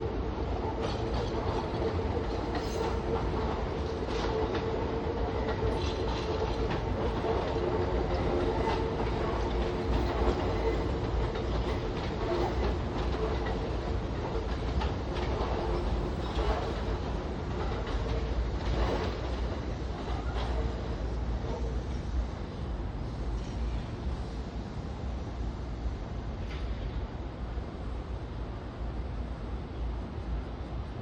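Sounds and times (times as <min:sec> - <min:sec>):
train rumble: 0:00.0 - 0:31.0
train wheels clicking over rail joints: 0:00.7 - 0:22.1.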